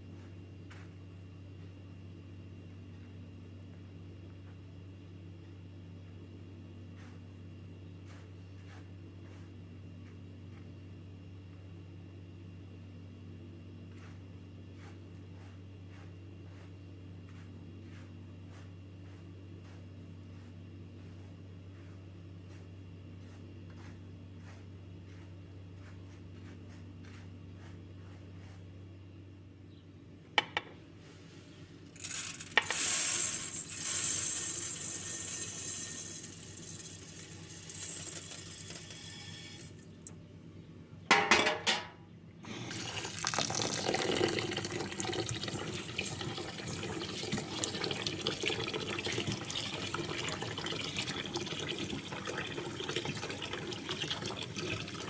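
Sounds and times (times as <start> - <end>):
water pouring into pot: 32.0 - 39.8, 42.7 - 55.0
dishes and pots knocking: 41.1 - 42.0.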